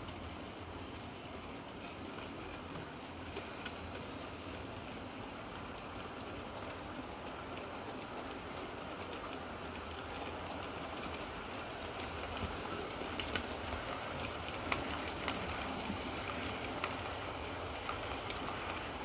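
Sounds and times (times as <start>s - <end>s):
model train wheels and motors rumbling: 0.0s - 19.0s
wheels clicking over rail joints: 0.0s - 19.0s.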